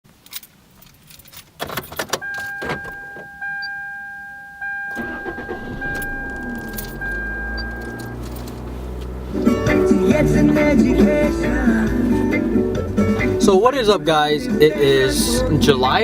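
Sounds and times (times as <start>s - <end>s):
car keys jingling: 0.1s - 3.7s, 4.9s - 13.1s
car engine idling: 0.5s - 3.3s, 4.9s - 15.9s
car door clicks: 1.4s - 3.4s, 4.9s - 9.8s
car electronic warning tone: 2.2s - 9.7s.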